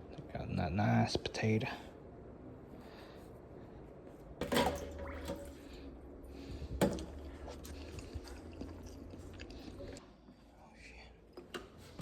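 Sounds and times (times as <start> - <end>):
soft wet squishing: 5.0 - 10.6.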